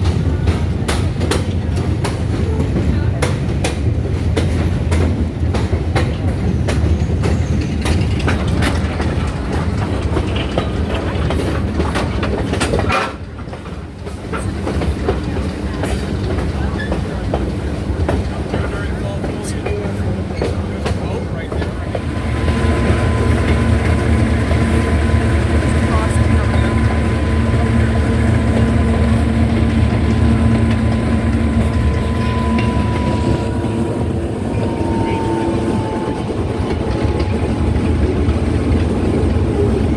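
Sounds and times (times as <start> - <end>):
railroad car rumbling: 0.0 - 39.9
wheels clicking over rail joints: 0.0 - 39.9.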